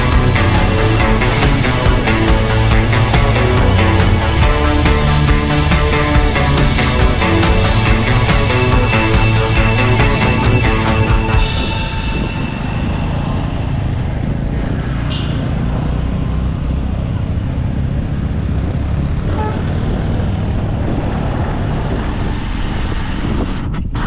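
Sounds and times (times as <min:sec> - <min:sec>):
dirt bike engine running: 0:00.0 - 0:16.5
rushing noise: 0:00.0 - 0:17.5, 0:18.3 - 0:24.0.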